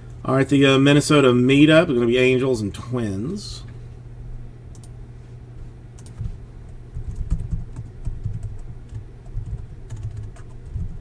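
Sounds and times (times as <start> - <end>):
low electrical hum: 0.0 - 11.0
keyboard typing: 6.0 - 6.2, 6.9 - 11.0.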